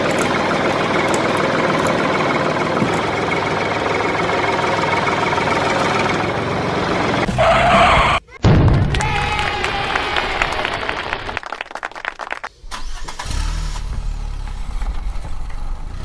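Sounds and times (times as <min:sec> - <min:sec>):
vehicle engine idling: 0:00.0 - 0:08.2.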